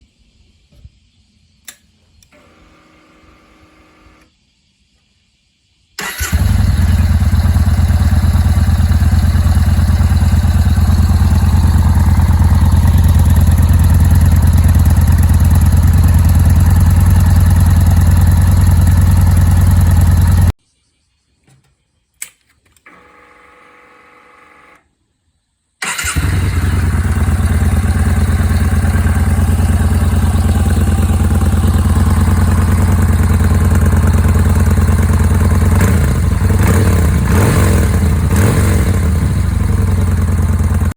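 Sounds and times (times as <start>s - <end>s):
motorcycle engine idling: 6.1s - 20.5s, 25.9s - 40.9s.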